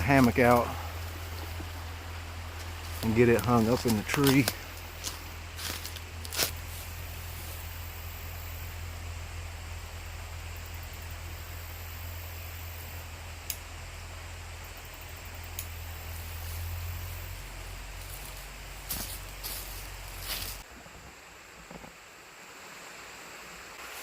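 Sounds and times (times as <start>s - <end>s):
flowing creek: 0.0s - 8.2s
low hum: 0.0s - 22.5s
faint clicks: 13.4s - 13.6s.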